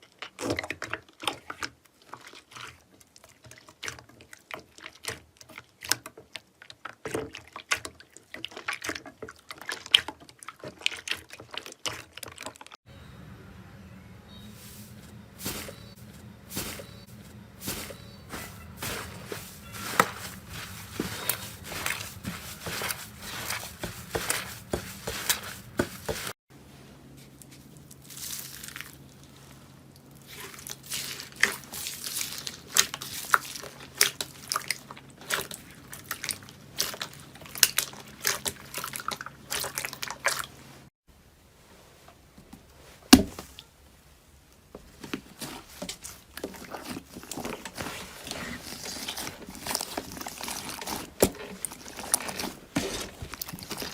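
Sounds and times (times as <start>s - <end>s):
slime crackling and squishing: 15.4s - 26.4s, 27.6s - 40.5s, 45.4s - 53.9s.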